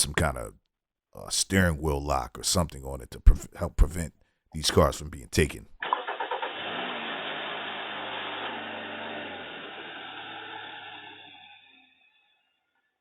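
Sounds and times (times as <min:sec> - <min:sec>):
car engine running: 0:05.8 - 0:11.6.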